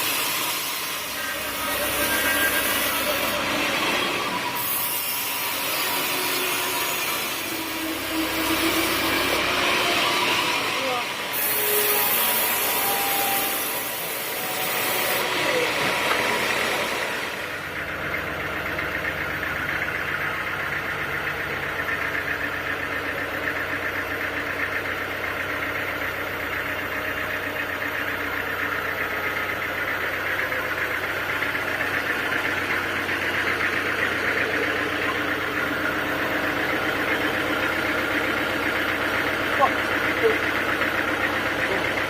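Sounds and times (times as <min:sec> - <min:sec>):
sawmill machinery running: 0:00.0 - 0:42.0.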